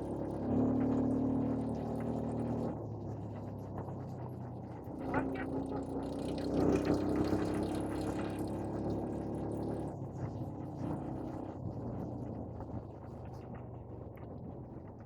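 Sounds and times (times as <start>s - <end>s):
quad bike engine running: 0.0s - 2.7s, 5.0s - 9.9s.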